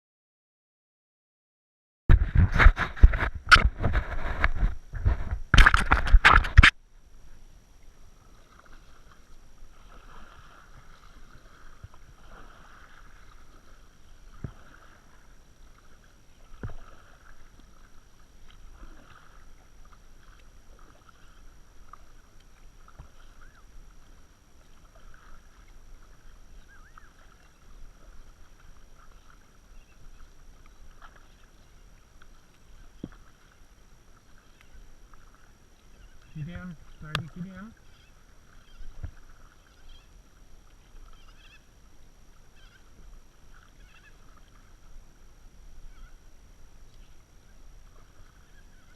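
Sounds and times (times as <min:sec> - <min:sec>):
bumping and rustling on microphone: 0:02.1 - 0:06.8
faint water sounds: 0:02.1 - 0:48.9.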